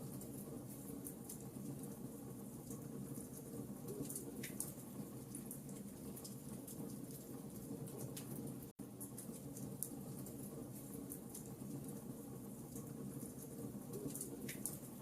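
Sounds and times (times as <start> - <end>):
burning logs crackling: 0.0 - 15.0.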